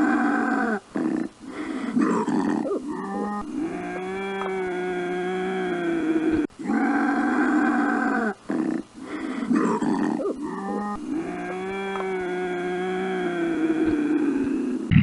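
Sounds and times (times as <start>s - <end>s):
animal calling: 0.0s - 15.0s.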